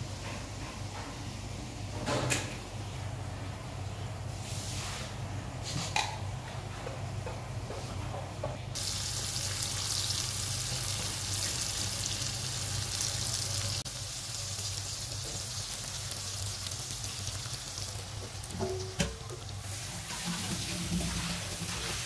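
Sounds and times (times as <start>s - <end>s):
onions sizzling in a pan: 8.8s - 22.0s.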